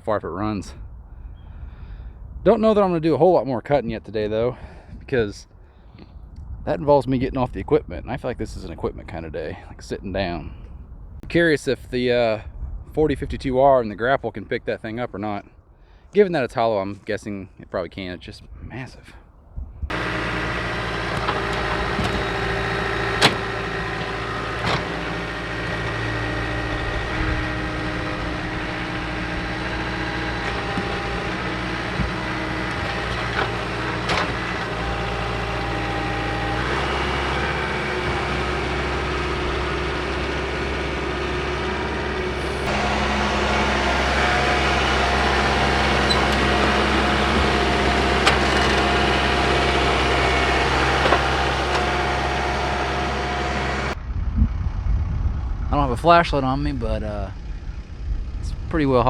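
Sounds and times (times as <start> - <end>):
tractor diesel engine running: 19.9 - 59.0.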